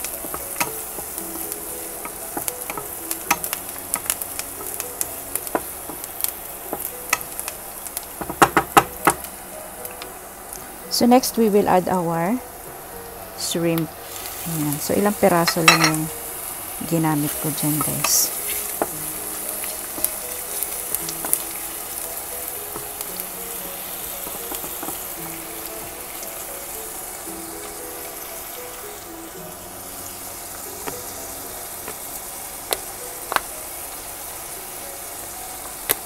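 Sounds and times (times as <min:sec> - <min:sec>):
shrimp sizzling in a frying pan: 0:00.0 - 0:36.0
soft background music: 0:00.0 - 0:36.0
spatula tapping a pan: 0:02.0 - 0:04.8, 0:06.7 - 0:09.3, 0:15.4 - 0:16.1, 0:19.7 - 0:21.6, 0:24.2 - 0:25.2.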